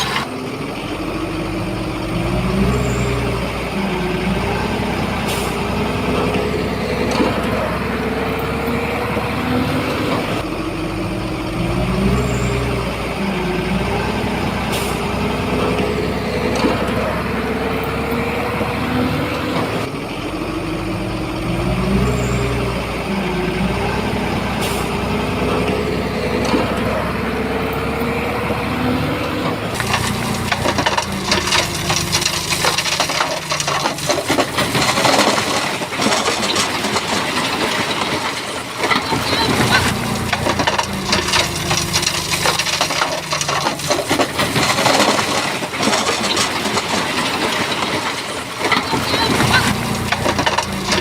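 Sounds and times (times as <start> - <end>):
heavy diesel engine under load: 0.0 - 51.0
stones grinding and tumbling: 29.7 - 51.0.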